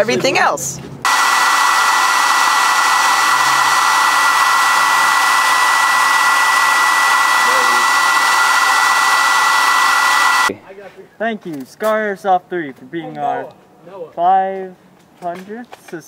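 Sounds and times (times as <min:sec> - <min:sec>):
high whine: 0:01.1 - 0:10.5
loud steady rushing noise: 0:01.1 - 0:10.5.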